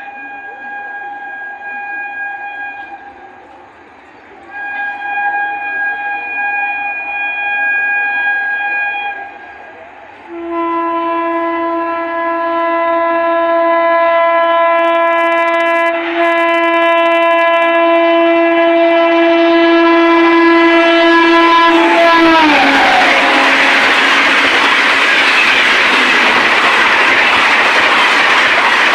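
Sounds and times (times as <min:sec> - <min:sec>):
locomotive horn blast: 0:00.0 - 0:03.3, 0:04.5 - 0:09.6, 0:10.2 - 0:26.6
train rushing past: 0:20.0 - 0:28.9.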